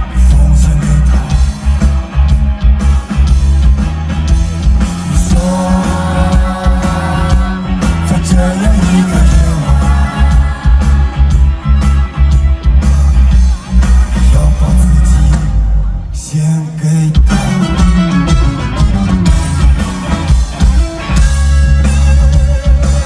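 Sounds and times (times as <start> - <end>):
person singing: 0.0 - 1.8, 5.1 - 12.0, 14.1 - 17.8
live rock band: 0.0 - 23.0.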